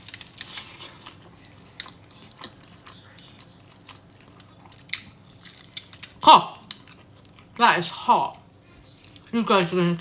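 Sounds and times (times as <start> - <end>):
person chewing chicken: 0.0 - 7.5.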